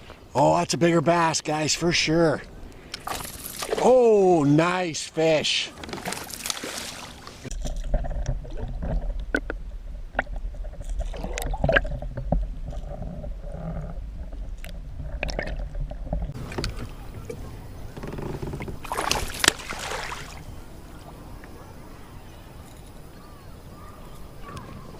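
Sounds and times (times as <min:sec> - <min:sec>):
light water sloshing: 0:02.5 - 0:04.1, 0:05.7 - 0:13.1, 0:14.2 - 0:22.8
knocks and clicks on a kayak: 0:07.5 - 0:19.6.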